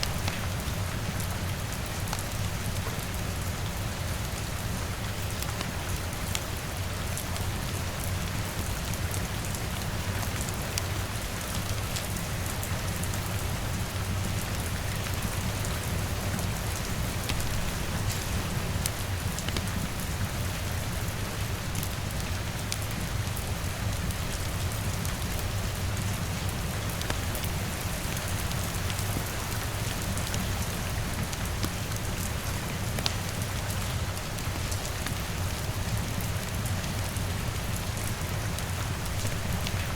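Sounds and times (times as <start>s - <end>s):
wood fire crackling: 0.0s - 1.1s, 11.5s - 23.4s, 24.0s - 35.9s
rain on window and roof: 0.0s - 39.9s.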